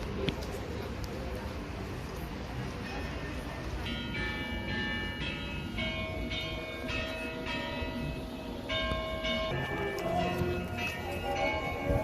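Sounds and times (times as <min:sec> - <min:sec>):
bells ringing: 0:02.6 - 0:12.0.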